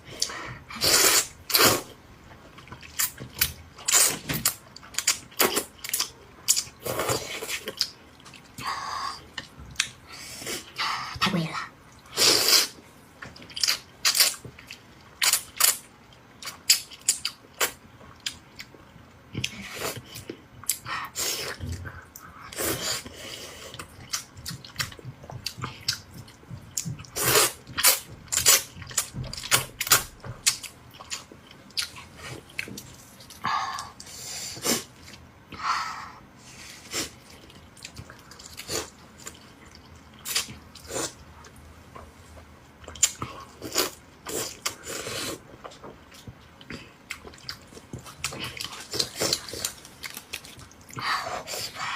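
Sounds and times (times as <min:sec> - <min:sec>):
chewing with wet smacks: 0:23.7 - 0:33.4, 0:45.5 - 0:51.0.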